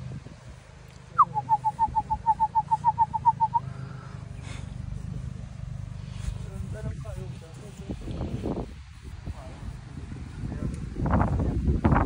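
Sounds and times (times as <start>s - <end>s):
steady low rumble: 0.0s - 12.0s
bird whistling call: 1.1s - 3.8s.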